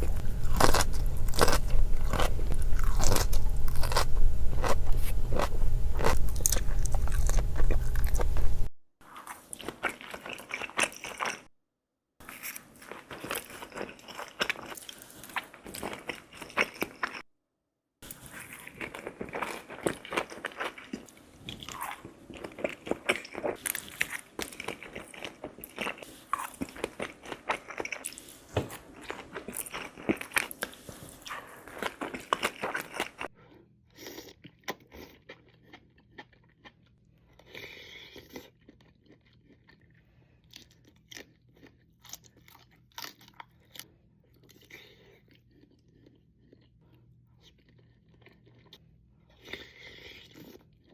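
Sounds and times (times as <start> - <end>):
low rumble: 0.0 - 8.7
people chewing and crunching food: 0.0 - 11.5, 12.2 - 17.3, 18.0 - 50.9.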